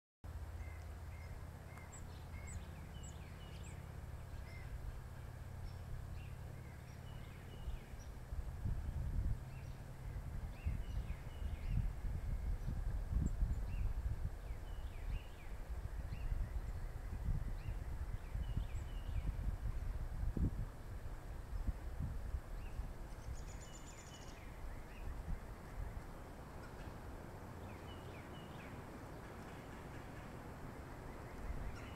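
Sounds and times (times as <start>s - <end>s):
steady low rumble: 0.3s - 31.9s
faint high bird chirps: 22.7s - 25.2s.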